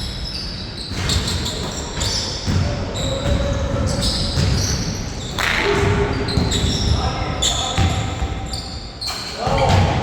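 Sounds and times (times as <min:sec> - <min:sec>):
basketball bouncing on court: 0:00.8 - 0:08.6.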